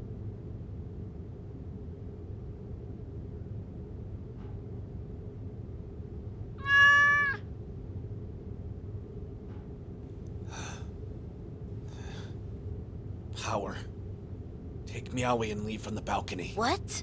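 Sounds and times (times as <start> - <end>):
low background hum: 0.0 - 17.0
cat meowing: 6.6 - 7.4.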